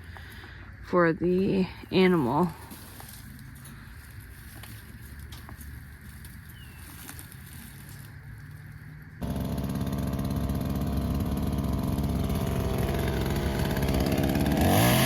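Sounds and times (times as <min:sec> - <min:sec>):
chainsaw idling and revving: 0:09.2 - 0:15.0.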